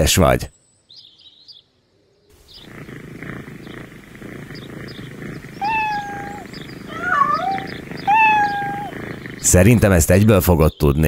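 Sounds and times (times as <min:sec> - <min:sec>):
faint bird chirps: 0:00.0 - 0:11.0
cat purring: 0:02.3 - 0:10.4
cat meowing: 0:05.4 - 0:09.4.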